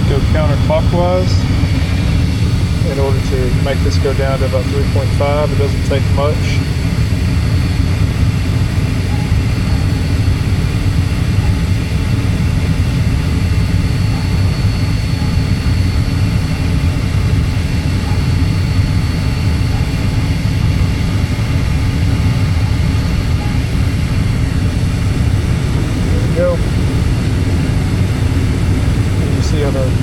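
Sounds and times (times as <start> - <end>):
gas furnace running: 0.0 - 30.0.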